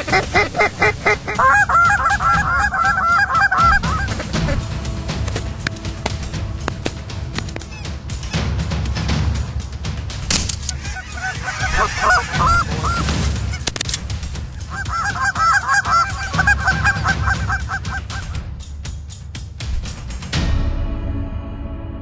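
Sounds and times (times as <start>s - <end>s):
geese honking: 0.0s - 8.4s, 10.3s - 18.4s
steady low rumble: 0.0s - 18.8s.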